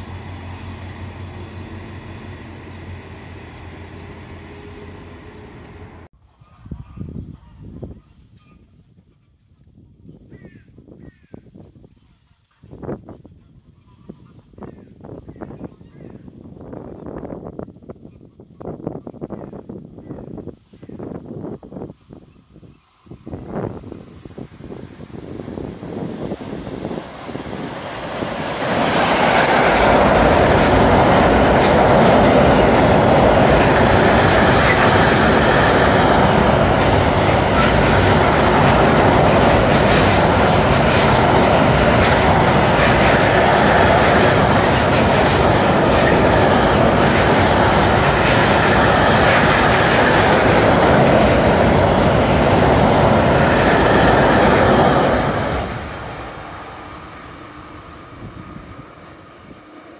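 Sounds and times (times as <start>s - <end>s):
freight train passing: 0.0s - 6.1s, 18.9s - 59.9s
steel wheels clattering on rail: 25.6s - 56.5s.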